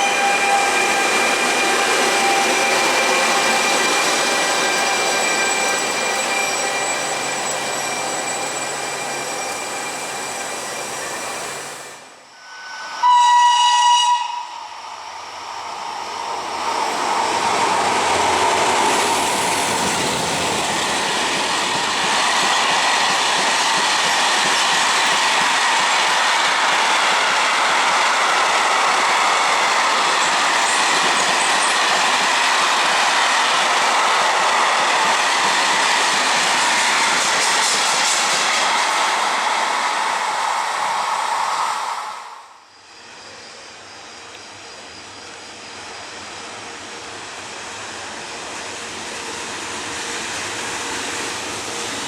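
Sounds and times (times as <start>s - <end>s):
train rushing: 0.0s - 52.0s
train horn blast: 12.4s - 14.8s.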